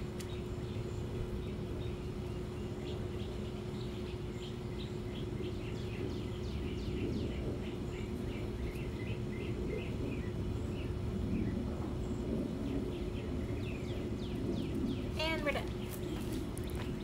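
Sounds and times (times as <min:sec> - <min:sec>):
birds chirping: 0:00.0 - 0:17.0
low background rumble: 0:00.0 - 0:17.0
steady low hum: 0:00.0 - 0:17.0.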